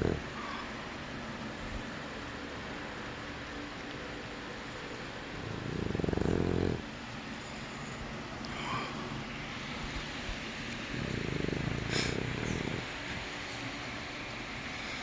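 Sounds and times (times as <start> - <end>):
puppy snoring: 0.0 - 0.6, 5.3 - 7.0, 10.8 - 13.4.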